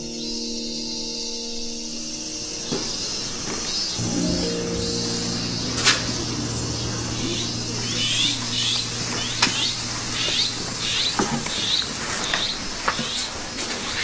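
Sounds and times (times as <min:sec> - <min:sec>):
low held music tone: 0:04.0 - 0:12.4.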